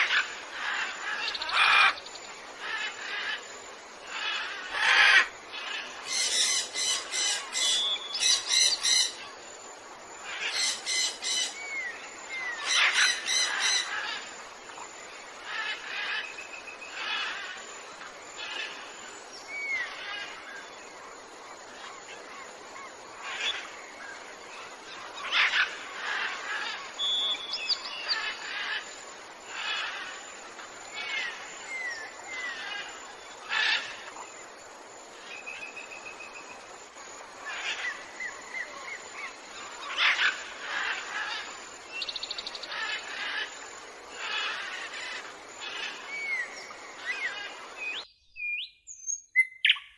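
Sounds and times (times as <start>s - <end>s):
birds calling: 0.0s - 3.4s, 4.1s - 9.3s, 10.2s - 14.8s, 21.7s - 34.3s, 37.4s - 49.9s
faint background hiss: 0.0s - 49.9s.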